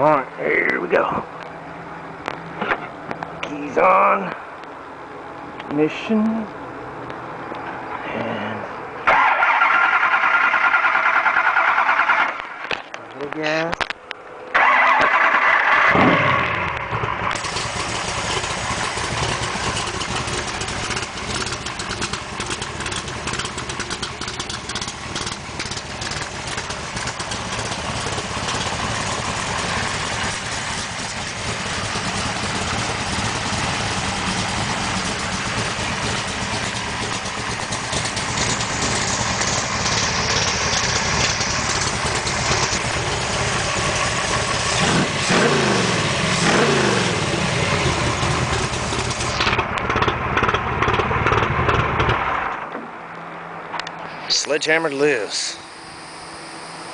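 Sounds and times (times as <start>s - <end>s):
engine starting and running: 7.4s - 56.9s.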